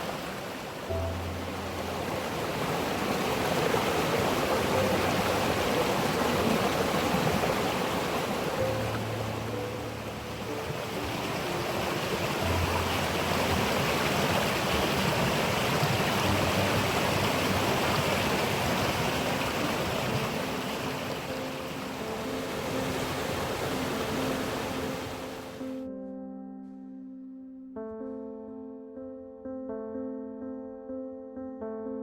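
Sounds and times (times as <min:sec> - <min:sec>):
water flowing over rocks: 0:00.0 - 0:25.6.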